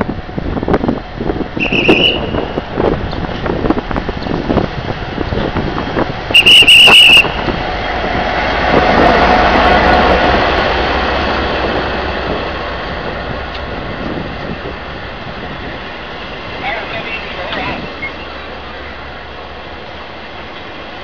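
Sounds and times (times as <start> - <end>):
diesel locomotive passing: 0.0 - 21.0
train coaches rolling past: 0.0 - 21.0
shrill whistle blast: 1.6 - 2.5, 6.4 - 7.4.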